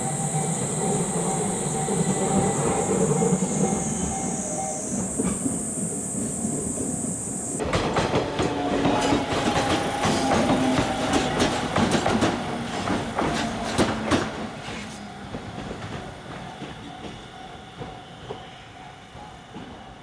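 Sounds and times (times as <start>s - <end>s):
tram wheels clattering over rail joints: 0.0s - 20.0s.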